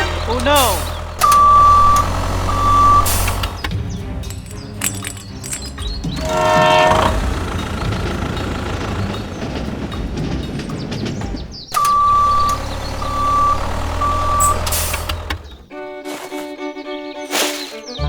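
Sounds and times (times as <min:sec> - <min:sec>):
reversing alarm beeping: 0:00.0 - 0:03.7, 0:05.5 - 0:10.1, 0:11.7 - 0:15.5
truck engine rumbling: 0:00.0 - 0:17.1.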